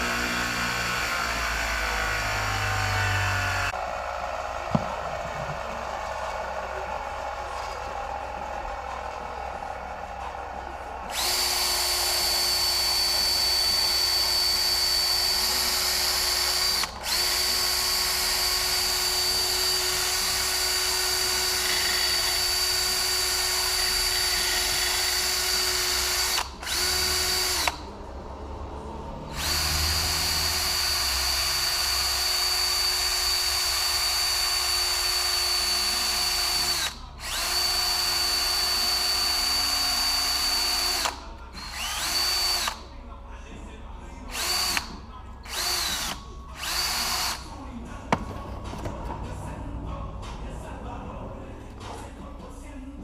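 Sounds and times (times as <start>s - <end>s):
electric drill whining: 0.0s - 3.8s, 11.1s - 27.9s, 29.3s - 42.8s, 44.3s - 47.5s.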